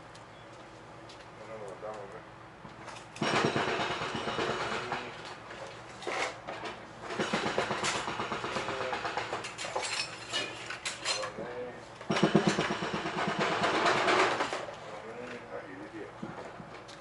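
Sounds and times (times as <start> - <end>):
metal tools clinking and clattering: 9.4 - 11.4.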